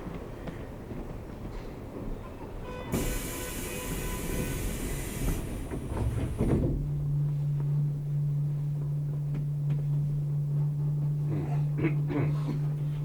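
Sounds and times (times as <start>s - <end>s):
train rumbling with knocks: 0.0s - 12.7s
train air hiss: 2.9s - 6.5s
steady low hum: 3.0s - 13.0s.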